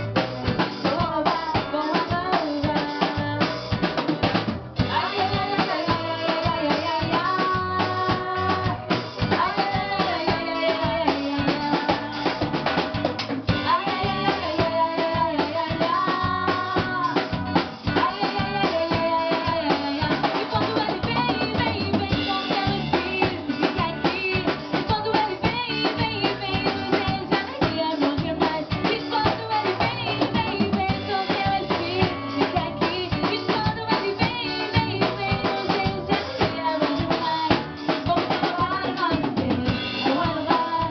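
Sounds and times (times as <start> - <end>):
band playing carnival music: 0.0 - 40.9
drum kit beat: 0.0 - 40.9.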